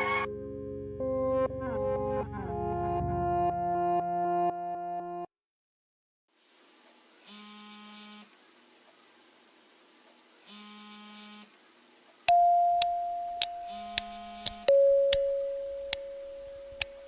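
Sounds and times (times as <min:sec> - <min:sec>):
high steady tone: 0:12.3 - 0:17.0
sharp clicks: 0:12.3 - 0:17.0.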